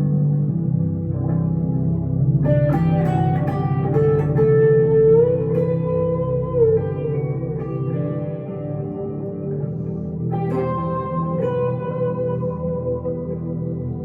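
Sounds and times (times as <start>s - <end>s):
electric guitar lead: 0.0s - 14.0s
low musical accompaniment: 0.0s - 14.0s.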